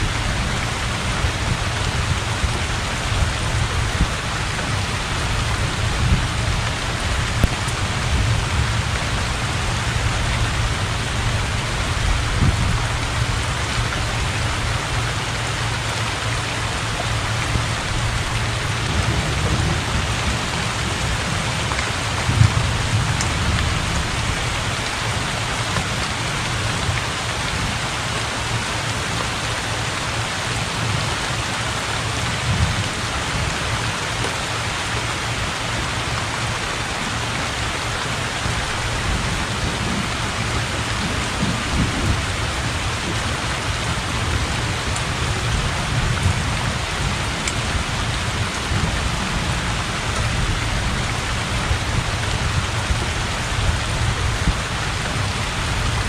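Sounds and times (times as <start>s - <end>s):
heavy rain on water: 0.0s - 56.0s
thunder rumbling: 16.9s - 25.5s.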